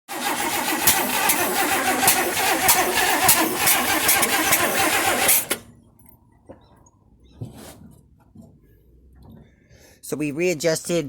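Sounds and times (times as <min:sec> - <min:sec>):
starter cranking car engine: 0:00.1 - 0:05.8.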